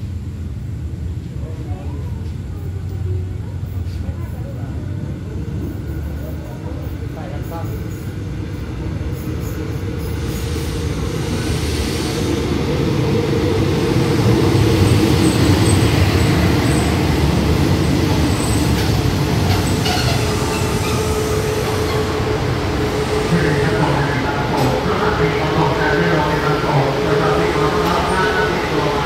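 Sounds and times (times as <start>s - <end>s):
train wheels rumbling: 2.1s - 29.0s
train brakes whine: 9.1s - 12.6s, 18.3s - 25.3s.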